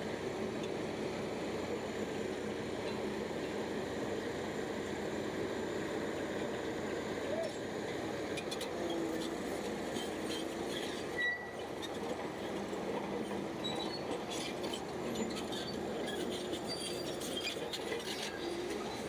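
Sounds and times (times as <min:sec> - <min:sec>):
bulldozer engine running: 0:00.0 - 0:19.0
steel tracks squeaking and clinking: 0:09.9 - 0:19.0.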